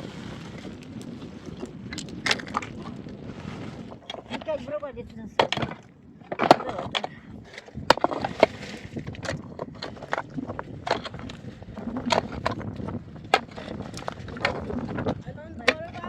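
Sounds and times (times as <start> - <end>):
scraping rustle: 2.4 - 4.8
wooden timbers knocking and clattering: 5.3 - 16.0.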